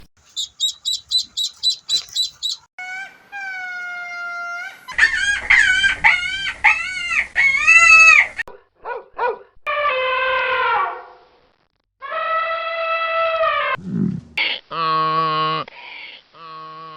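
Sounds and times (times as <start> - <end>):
high chirps: 0.2 - 2.7
animal calls and cries: 0.2 - 8.4.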